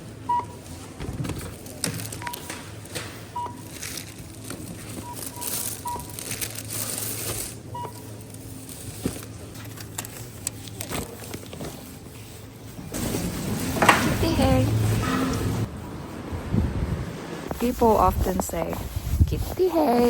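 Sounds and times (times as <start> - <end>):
checkout scanner beeping: 0.0 - 18.7
plastic bags rustling: 0.7 - 15.0.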